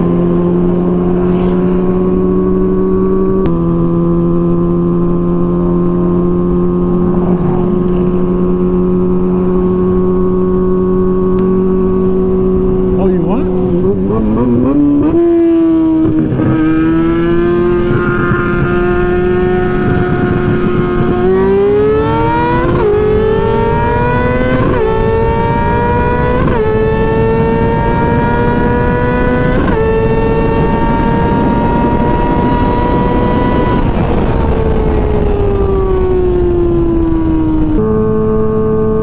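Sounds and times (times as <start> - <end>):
motorcycle engine accelerating: 0.0 - 39.0
wind rush: 5.6 - 37.9.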